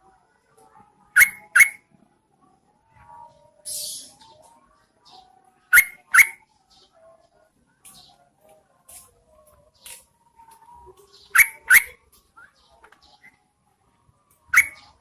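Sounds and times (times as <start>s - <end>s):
bird chirping: 1.2s - 1.8s, 3.0s - 8.6s, 9.4s - 13.5s, 14.4s - 15.0s.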